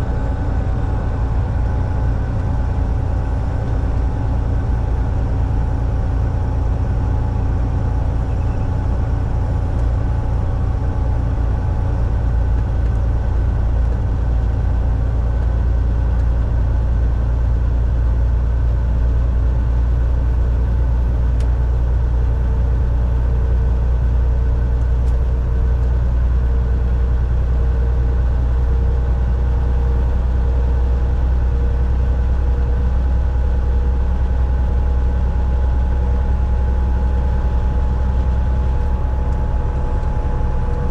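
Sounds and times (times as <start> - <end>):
truck engine drone: 0.0 - 40.9
road noise: 35.3 - 40.9.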